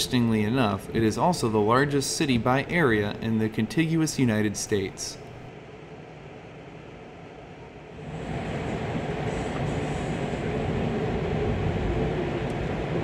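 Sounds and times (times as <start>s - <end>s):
rumble of wheels on rails: 7.8s - 13.0s.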